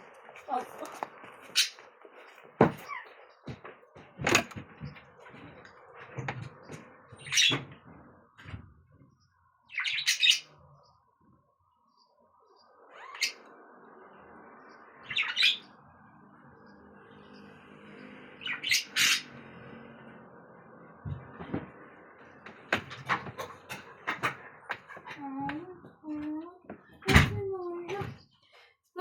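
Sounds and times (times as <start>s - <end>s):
objects clattering and knocking: 2.5s - 8.7s, 21.0s - 21.8s, 22.4s - 26.0s.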